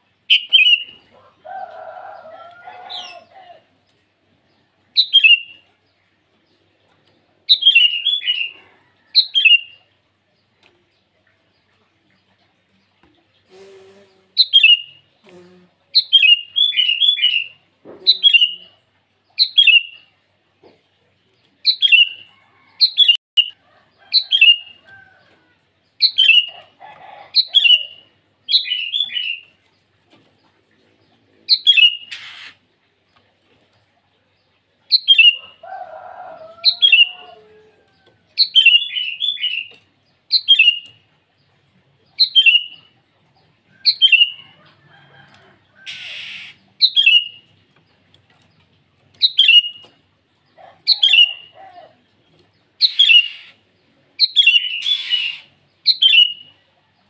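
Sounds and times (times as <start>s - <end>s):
fainter lower bird call: 45.8s - 47.4s, 52.8s - 53.6s, 54.2s - 56.6s.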